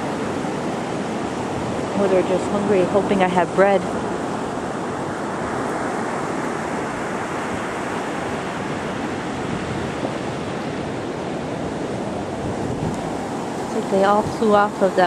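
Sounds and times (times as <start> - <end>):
ocean surf: 0.0 - 15.0
wind: 0.0 - 15.0.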